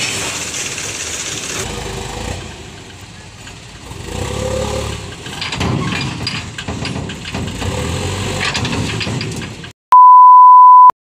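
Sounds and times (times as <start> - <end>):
diesel engine running: 0.0 - 9.7
loud steady high beep: 9.9 - 10.9.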